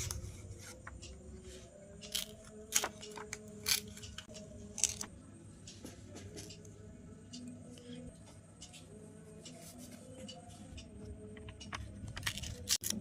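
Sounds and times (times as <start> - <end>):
scissors cutting paper: 2.0 - 5.1, 11.6 - 13.0.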